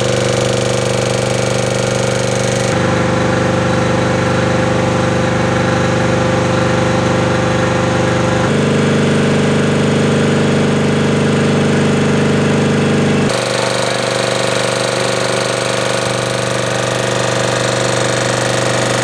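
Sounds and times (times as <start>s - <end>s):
air compressor knocking: 0.0s - 2.9s, 10.7s - 19.0s.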